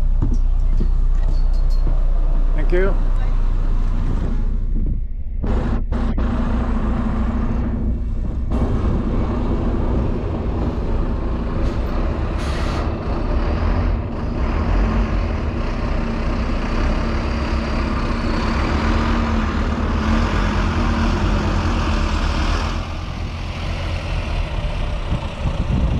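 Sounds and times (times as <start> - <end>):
bus engine hum: 0.0 - 25.9
road noise: 0.0 - 25.9
air brake hiss: 12.4 - 12.9.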